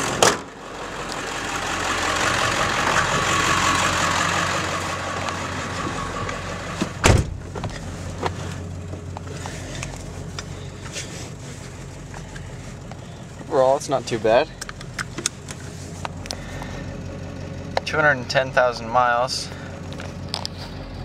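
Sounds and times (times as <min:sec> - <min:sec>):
diesel truck engine idling: 0:00.0 - 0:21.0
door slamming shut: 0:06.8 - 0:07.5.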